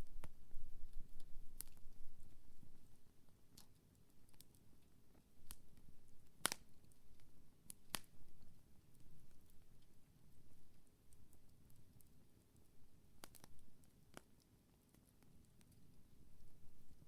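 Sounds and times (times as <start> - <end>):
campfire rumble: 0.0 - 17.0
fire crackles and pops: 0.0 - 17.0.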